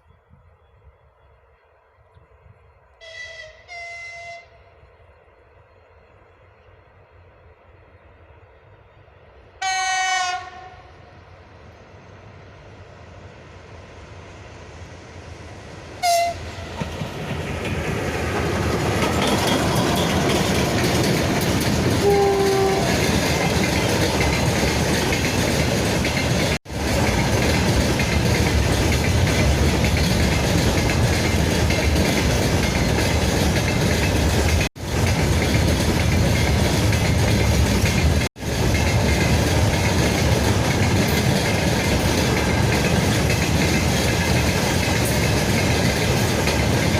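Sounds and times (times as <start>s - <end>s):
freight train rumble: 0.0s - 46.9s
train horn toot: 3.0s - 4.8s, 9.6s - 11.1s, 16.0s - 16.7s, 22.0s - 23.2s
wheels clacking over rail joints: 16.0s - 46.9s.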